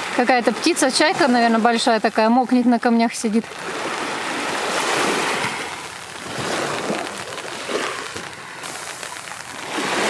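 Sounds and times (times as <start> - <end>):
sea waves washing onto shore: 0.0 - 10.0.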